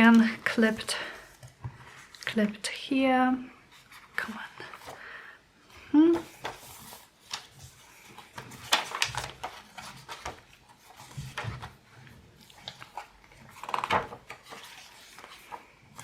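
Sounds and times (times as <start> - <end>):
paper pages rustling: 6.2 - 16.0.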